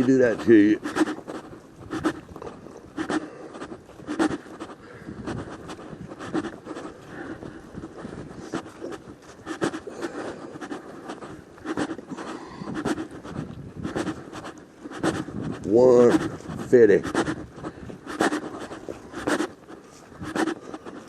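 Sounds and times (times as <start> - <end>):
footsteps crunching on trail: 0.0 - 21.0
person breathing: 2.0 - 14.2.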